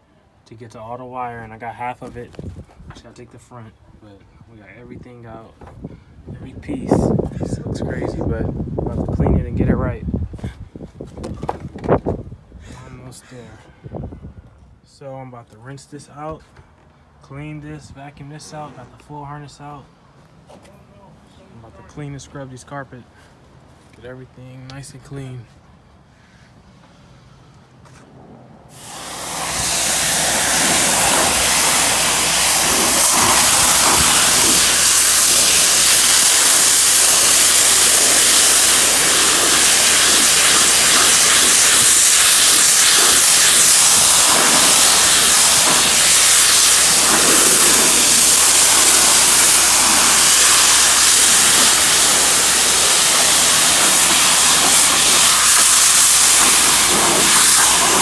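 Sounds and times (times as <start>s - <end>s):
carpet cleaning machine running: 28.8s - 41.6s, 43.0s - 58.0s.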